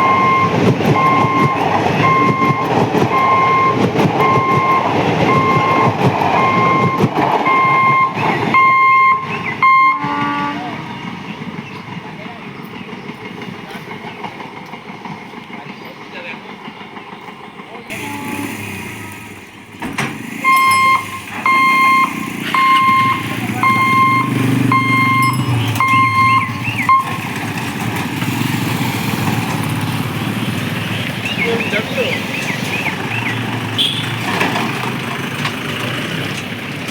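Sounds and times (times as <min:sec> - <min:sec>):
electronic warning beep: 0:00.0 - 0:10.3, 0:20.4 - 0:27.3
train passing with wheel clicks: 0:00.0 - 0:36.9
vehicle engines rumbling: 0:00.0 - 0:36.9.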